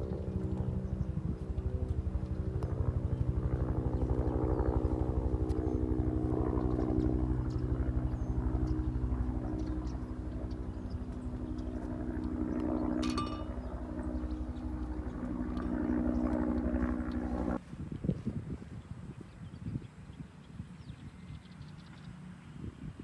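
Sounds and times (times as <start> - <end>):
small engine running: 0.0 - 17.6.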